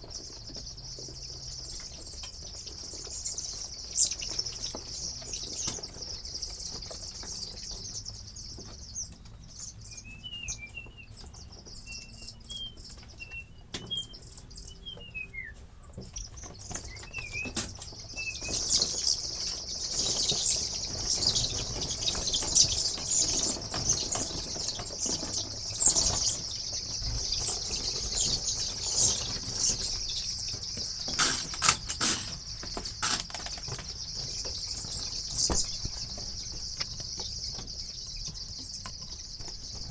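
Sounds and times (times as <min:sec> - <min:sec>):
chickens peeping: 0:00.0 - 0:39.9
rustling: 0:31.1 - 0:34.0.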